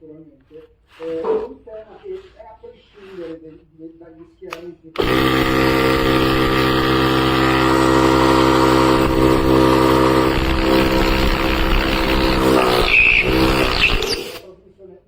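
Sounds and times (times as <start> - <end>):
loud motor drone: 5.0 - 14.4.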